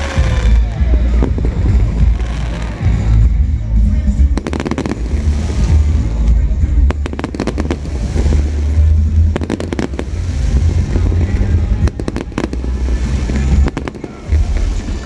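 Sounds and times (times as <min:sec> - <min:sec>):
fireworks bangs and crackles: 0:00.0 - 0:15.0
steady deep rumble: 0:00.0 - 0:15.0.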